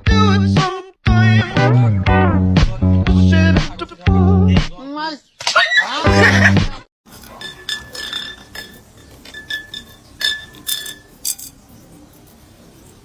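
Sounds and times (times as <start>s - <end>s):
light glassy clinks: 7.1s - 13.0s.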